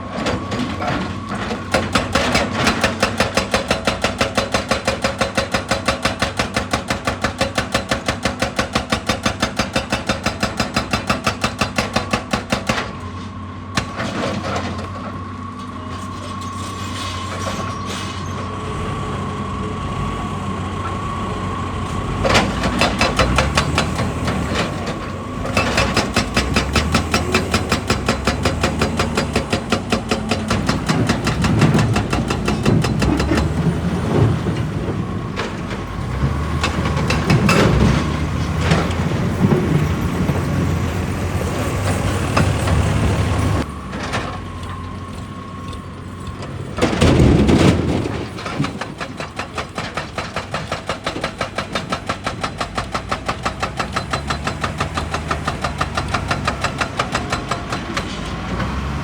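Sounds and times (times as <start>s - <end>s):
hydraulic breaker hammering rock: 0.4s - 13.2s, 22.1s - 40.8s, 41.8s - 58.9s
diesel engine whining: 12.5s - 59.0s.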